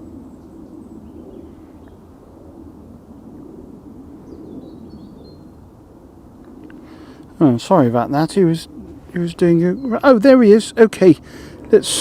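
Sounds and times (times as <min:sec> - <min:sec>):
wind rumble: 0:00.0 - 0:12.0
faint bird chirps: 0:04.2 - 0:05.6.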